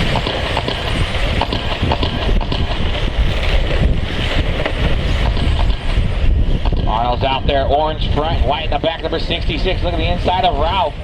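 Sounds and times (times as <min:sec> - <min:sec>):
wind buffeting microphone: 0:00.0 - 0:11.0
sharp clicks and knocks: 0:00.1 - 0:02.9.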